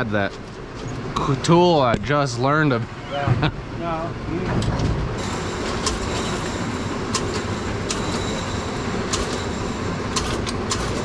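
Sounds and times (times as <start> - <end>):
machinery low rumble: 0.0 - 11.0.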